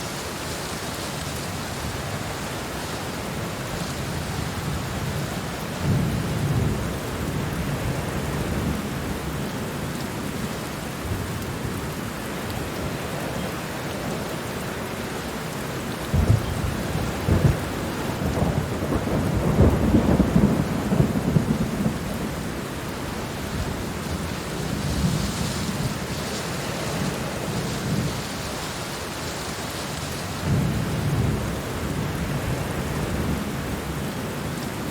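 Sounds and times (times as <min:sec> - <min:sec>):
heavy rain falling: 0:00.0 - 0:34.9
rolling thunder: 0:16.1 - 0:28.7, 0:30.4 - 0:34.0.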